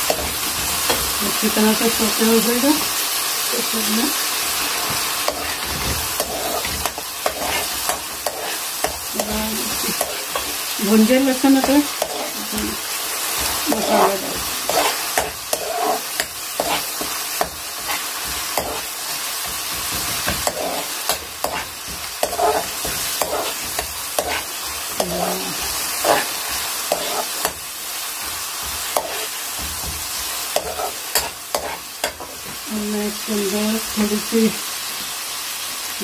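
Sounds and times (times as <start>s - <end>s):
spices sizzling in oil: 0.0s - 36.0s
metal spatula scraping pan: 4.6s - 12.8s, 13.4s - 27.6s, 28.2s - 32.4s.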